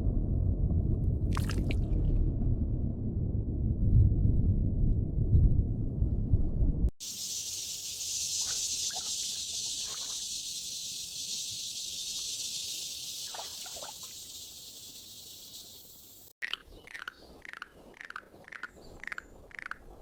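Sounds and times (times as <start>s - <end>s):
insect chorus hiss: 7.0s - 16.4s.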